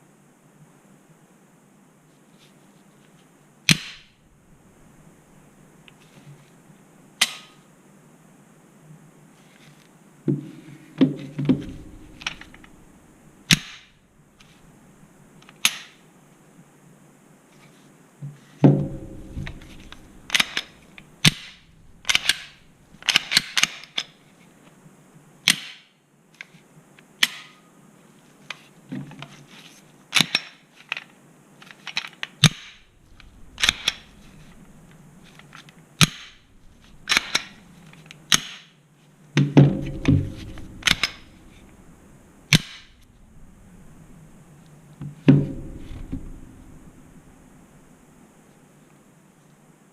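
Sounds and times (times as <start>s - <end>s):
pistol metallic clicks and snaps: 3.7s - 4.2s, 7.2s - 7.6s, 13.5s - 14.6s, 15.4s - 16.0s, 18.8s - 24.2s, 25.4s - 26.5s, 27.2s - 27.6s, 30.1s - 38.8s, 39.8s - 41.8s, 42.5s - 43.0s
heavier knocks: 10.3s - 13.1s, 18.6s - 23.1s, 32.8s - 35.3s, 36.2s - 37.7s, 39.4s - 48.1s.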